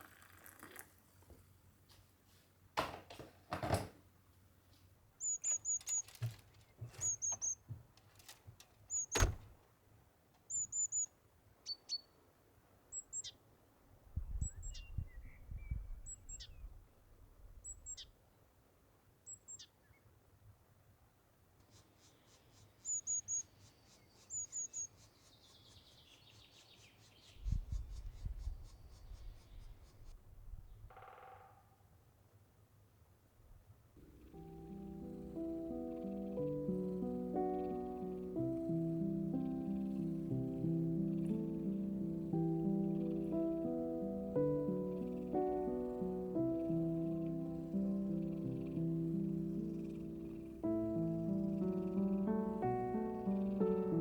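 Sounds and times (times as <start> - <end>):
small songbird chirping: 5.2 - 7.8, 8.9 - 9.3, 10.5 - 12.2, 12.9 - 13.4, 14.2 - 16.8, 17.6 - 18.2, 19.2 - 20.1, 21.7 - 30.9, 34.0 - 54.0.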